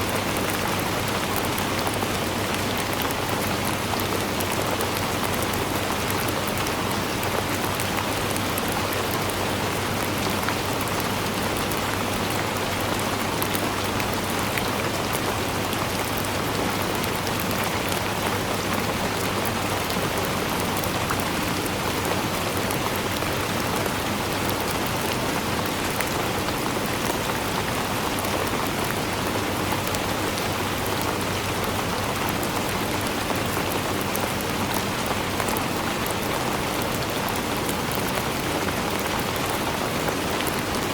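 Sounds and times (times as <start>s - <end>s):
dense rain pattering: 0.0s - 40.9s.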